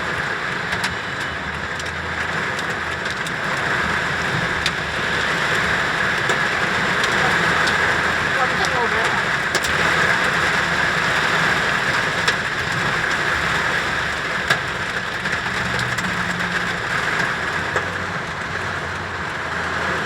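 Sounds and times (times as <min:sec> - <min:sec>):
sharp raindrop impacts: 0:00.0 - 0:19.3
steady rain hiss: 0:03.1 - 0:17.7.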